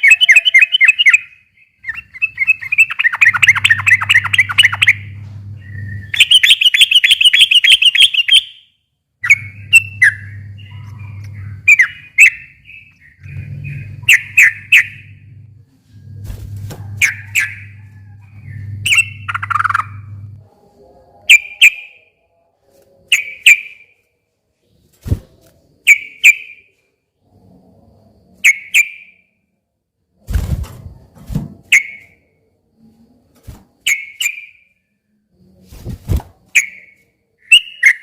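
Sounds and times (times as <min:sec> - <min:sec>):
low hum: 0:03.3 - 0:06.4, 0:09.1 - 0:21.3.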